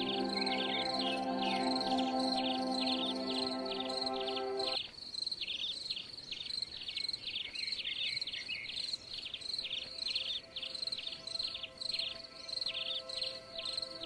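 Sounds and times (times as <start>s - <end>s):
continuous high trill: 0.0s - 4.8s.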